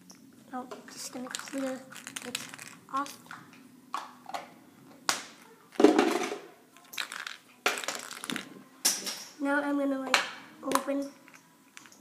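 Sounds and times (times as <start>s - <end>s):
play dough crunching and rustling: 0.9s - 3.4s, 6.8s - 8.5s.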